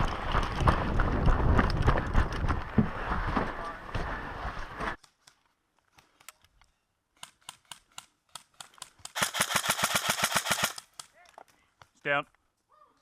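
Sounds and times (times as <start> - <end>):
airsoft full-auto burst: 9.1 - 10.9.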